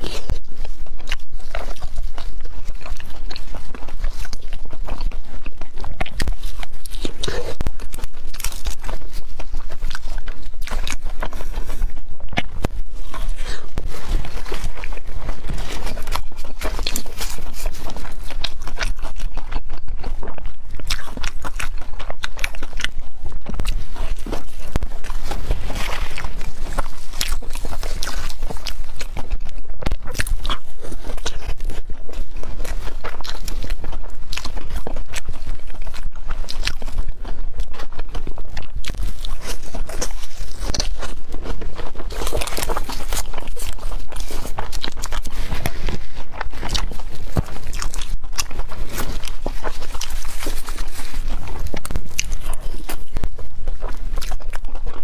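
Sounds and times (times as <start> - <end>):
close chewing and crunching: 0.0 - 55.0.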